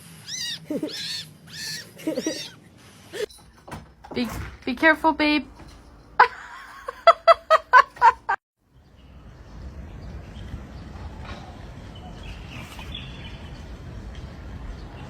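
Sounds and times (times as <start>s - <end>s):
bird calls: 0.2s - 2.6s.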